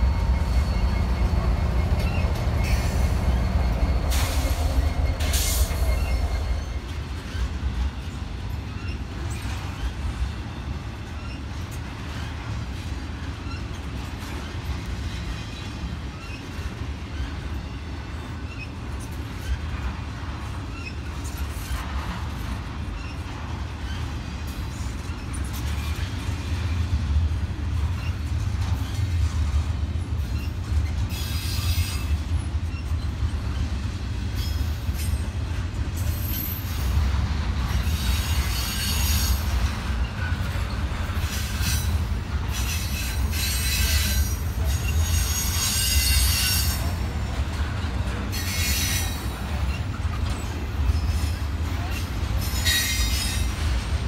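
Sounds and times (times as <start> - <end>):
high-pitched wheel squeal: 0.0 - 6.9, 42.5 - 46.9
freight cars rumbling on rails: 0.0 - 54.0.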